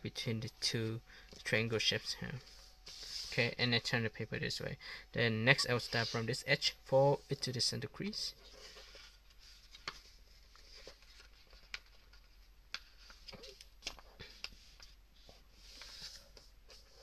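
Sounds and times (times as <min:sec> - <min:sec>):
paper rustling and crinkling: 0:08.4 - 0:17.0.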